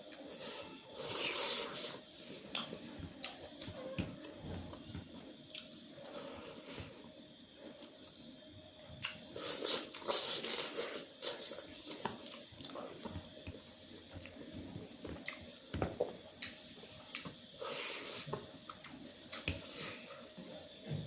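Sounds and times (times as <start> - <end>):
chewing and mouth smacks: 9.0 - 17.4.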